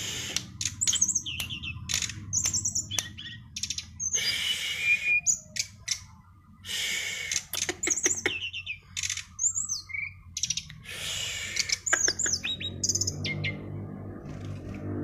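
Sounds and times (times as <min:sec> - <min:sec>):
songbird singing: 0:00.0 - 0:14.5.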